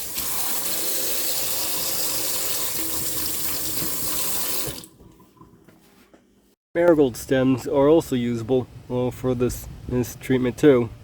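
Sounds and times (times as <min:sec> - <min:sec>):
tap water running over vegetables: 0:00.0 - 0:04.9.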